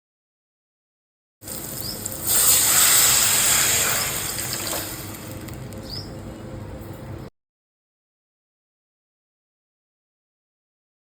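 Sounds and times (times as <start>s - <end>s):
sizzling hiss from hot pan: 1.5s - 5.4s.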